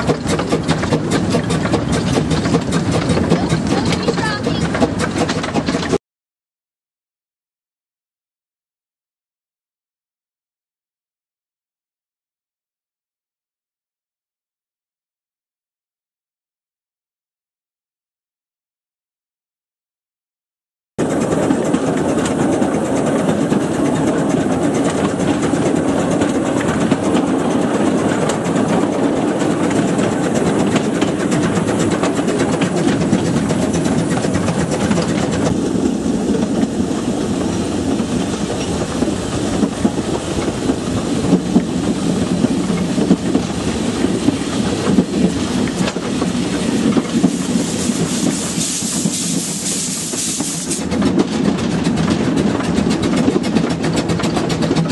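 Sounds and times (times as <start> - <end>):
train cars rattling: 0.0 - 6.0, 21.0 - 54.9
train wheels rumbling on rails: 0.0 - 6.0, 21.0 - 54.9.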